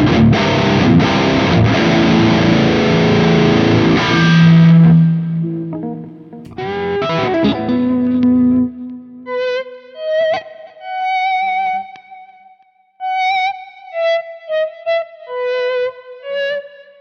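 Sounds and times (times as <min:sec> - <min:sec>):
distorted electric guitar riffs: 0:00.1 - 0:08.2.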